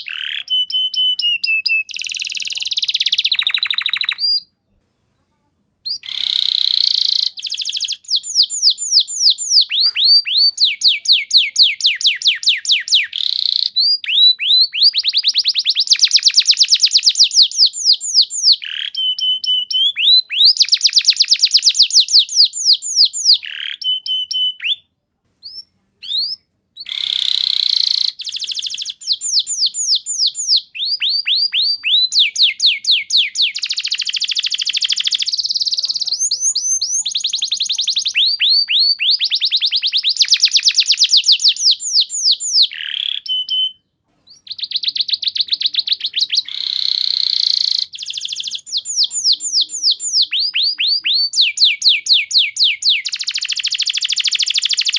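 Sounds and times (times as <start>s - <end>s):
canary singing fast trills: 0.0s - 4.5s, 5.8s - 54.9s.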